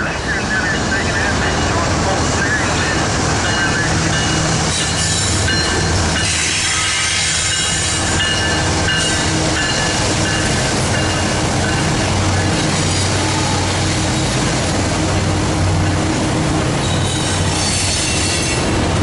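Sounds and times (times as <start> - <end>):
freight train wheels rumbling: 0.0 - 19.0
high wheel squeals: 16.8 - 18.6.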